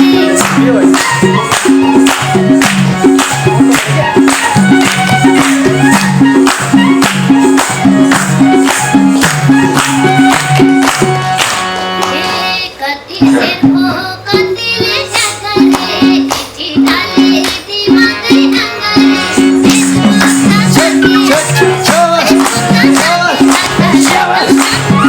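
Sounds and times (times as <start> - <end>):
hand drum beat: 0.0 - 11.6, 19.4 - 25.0
sliding melody line: 0.0 - 12.6, 18.8 - 25.0.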